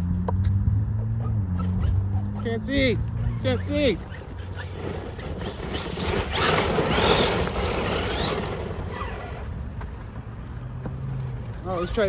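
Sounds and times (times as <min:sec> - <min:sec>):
rc car motor whine: 0:01.6 - 0:10.0, 0:11.4 - 0:12.0
tyres rushing on loose ground: 0:02.6 - 0:12.0.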